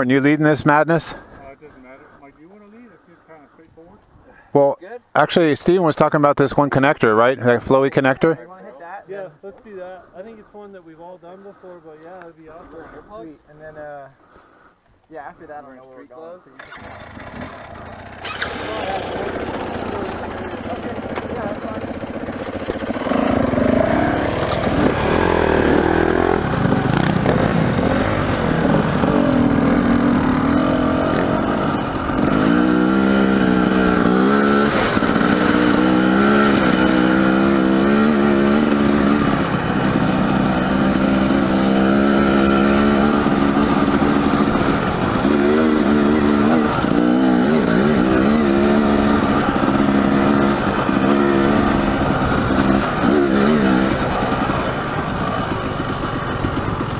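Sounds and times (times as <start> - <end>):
dirt bike engine revving: 16.6 - 56.9.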